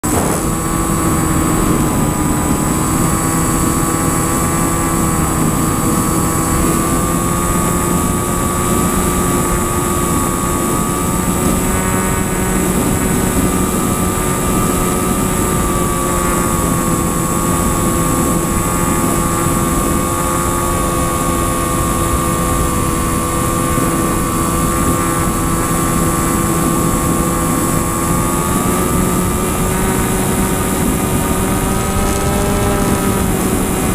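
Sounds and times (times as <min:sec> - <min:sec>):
aircraft engine drone: 0:00.0 - 0:33.9.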